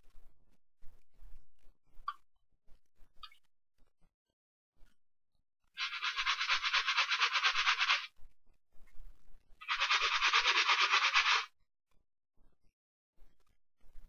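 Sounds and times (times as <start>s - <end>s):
brush scrubbing a sneaker: 5.8s - 8.1s, 9.6s - 11.5s.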